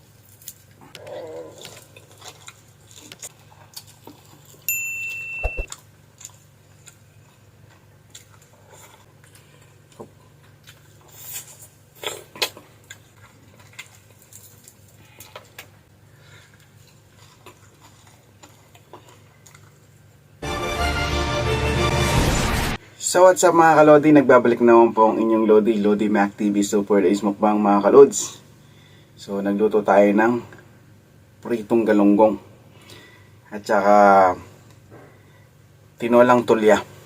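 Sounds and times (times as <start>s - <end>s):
short electronic beep: 5.2s - 5.7s.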